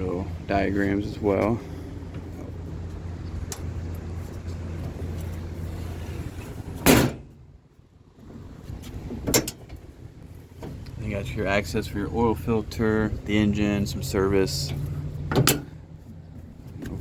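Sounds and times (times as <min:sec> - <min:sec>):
low steady hum: 0:00.0 - 0:17.0
metal door banging shut: 0:06.8 - 0:07.4, 0:09.2 - 0:09.8, 0:15.3 - 0:15.8.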